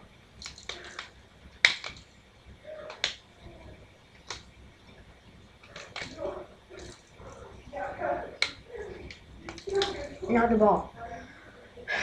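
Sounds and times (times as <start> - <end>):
plastic puzzle segments clicking: 0.4 - 2.1, 2.9 - 3.6, 4.2 - 4.5, 5.6 - 7.6, 8.3 - 10.4.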